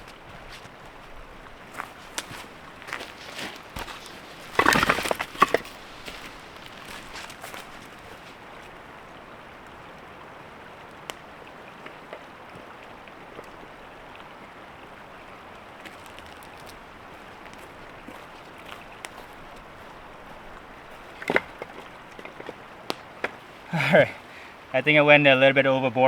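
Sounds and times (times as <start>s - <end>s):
creek water rushing: 0.0s - 26.0s
faint clicks and knocks: 15.8s - 23.4s.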